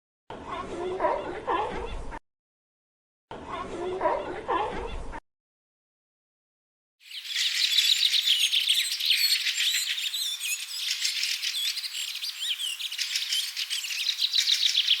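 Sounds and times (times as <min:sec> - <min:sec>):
small birds chirping: 0:07.0 - 0:15.0.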